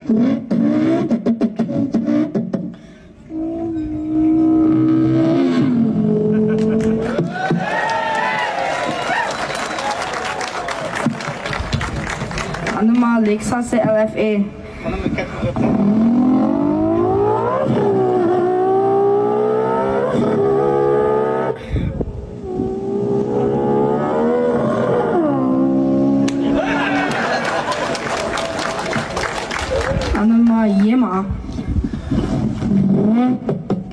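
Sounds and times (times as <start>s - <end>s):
boy imitating engine revving: 3.3s - 7.0s, 15.6s - 21.6s.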